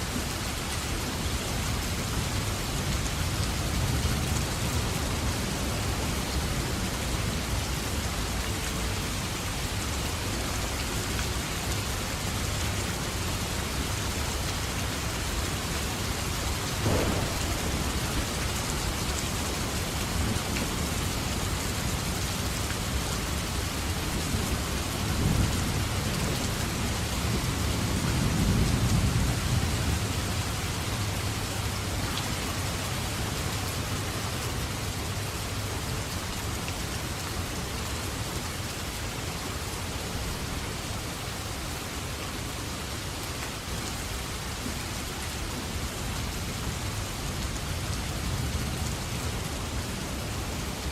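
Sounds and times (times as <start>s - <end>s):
heavy rain falling: 0.0s - 50.9s
thunder rumbling: 16.7s - 20.8s.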